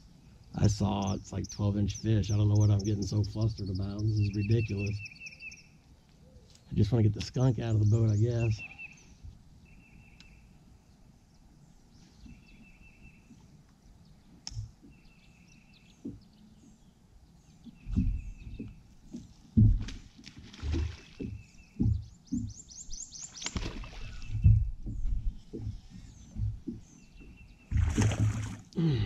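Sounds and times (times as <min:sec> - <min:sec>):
bird buzzy song: 0:00.0 - 0:29.0
loud low thumps and knocks: 0:19.6 - 0:20.0, 0:20.7 - 0:22.6.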